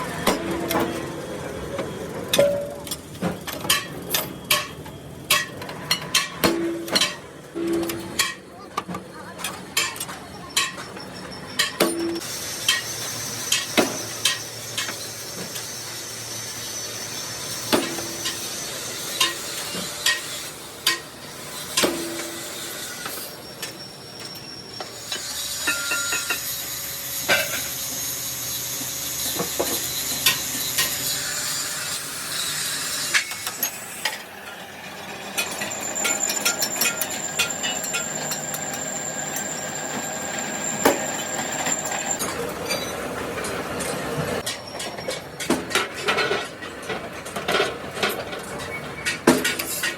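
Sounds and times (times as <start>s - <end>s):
high-pitched machine whine: 10.8s - 31.6s, 33.1s - 44.4s.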